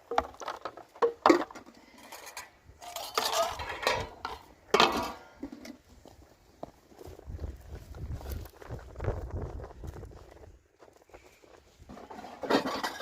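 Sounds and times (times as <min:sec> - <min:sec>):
metal dishes clinking: 0:02.0 - 0:05.4, 0:12.4 - 0:13.0.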